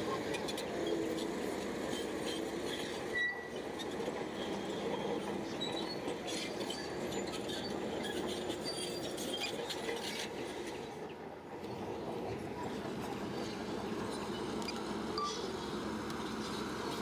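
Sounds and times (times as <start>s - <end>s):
bulldozer engine: 0.0s - 17.0s
tracks squealing and clanking: 0.1s - 10.6s.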